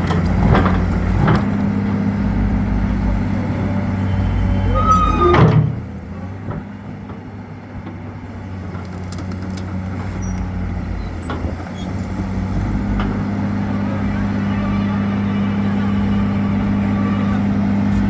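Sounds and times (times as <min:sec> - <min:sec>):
excavator diesel engine running: 0:00.0 - 0:18.0
short whine: 0:00.6 - 0:06.2.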